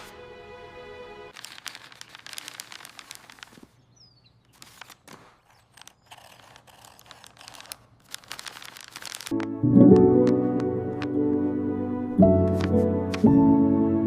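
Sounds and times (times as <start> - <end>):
crackling and rustling: 1.3 - 9.5.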